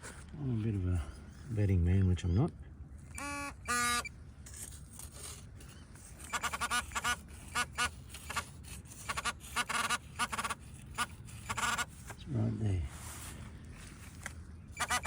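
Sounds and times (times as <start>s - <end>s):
metal detector beeps: 3.1s - 4.1s, 6.2s - 8.3s, 14.7s - 15.0s.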